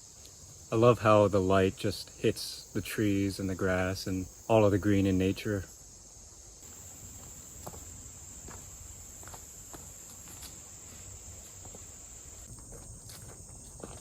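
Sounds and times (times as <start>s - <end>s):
crickets chirring: 0.0s - 14.0s
faint footsteps: 6.6s - 14.0s.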